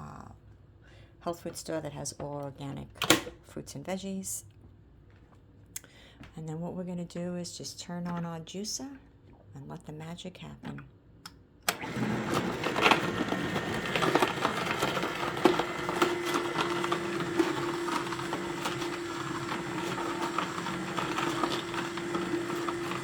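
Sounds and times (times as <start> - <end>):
juicer motor running: 11.7 - 23.0.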